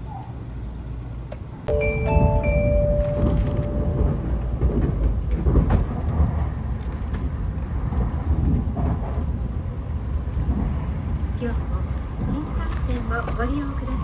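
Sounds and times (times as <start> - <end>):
train rumbling: 0.0 - 14.0
short chime tones: 1.7 - 4.6.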